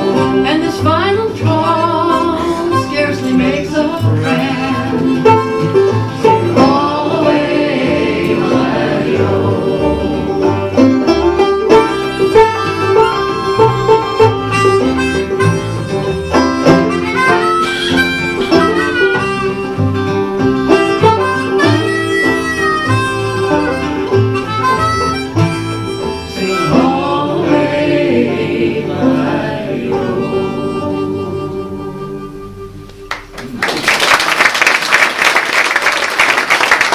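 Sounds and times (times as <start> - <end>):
harmonica: 0.0 - 33.2
acoustic folk band playing: 0.0 - 33.4
audience applause: 33.1 - 36.9.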